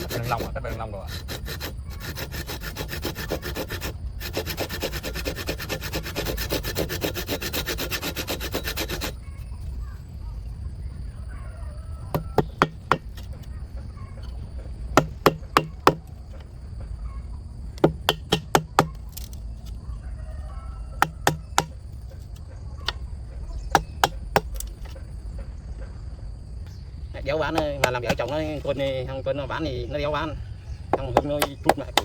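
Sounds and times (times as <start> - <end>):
hand tool striking wood: 12.1 - 13.5, 14.2 - 16.5, 17.8 - 19.4, 21.0 - 23.0, 23.7 - 25.0, 27.5 - 28.9, 30.9 - 32.0.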